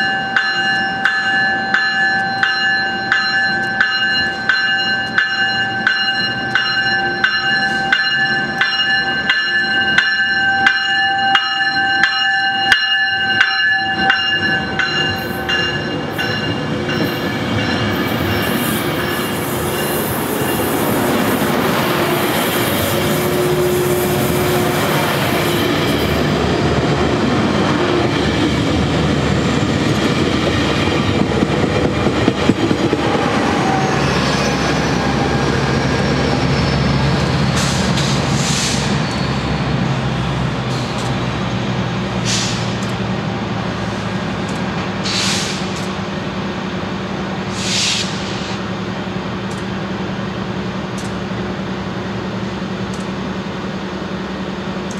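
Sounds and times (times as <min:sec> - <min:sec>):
diesel locomotives humming: 0:00.0 - 0:54.9
short hisses: 0:45.1 - 0:45.8, 0:47.5 - 0:48.6.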